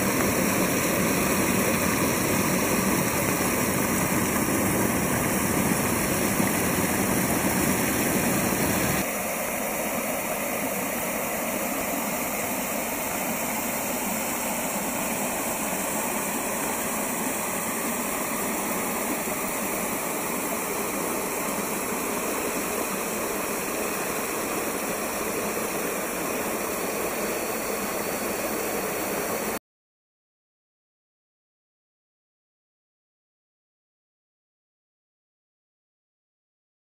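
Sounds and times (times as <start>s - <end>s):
creek flowing over stones: 0.0s - 9.0s
water rushing over rocks: 0.0s - 9.0s.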